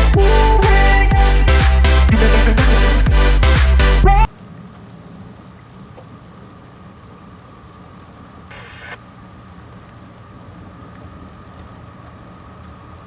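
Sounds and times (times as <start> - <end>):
low engine rumble: 0.0 - 4.3.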